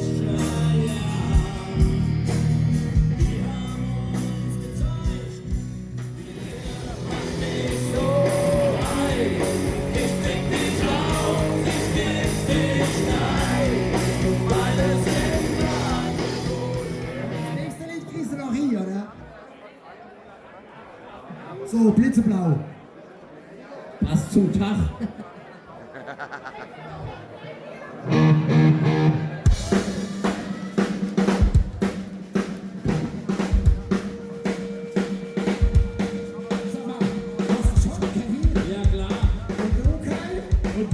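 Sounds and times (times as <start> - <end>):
drum kit beat: 0.0 - 17.7, 29.4 - 40.9
live rock and roll band: 0.0 - 17.8, 28.1 - 40.9.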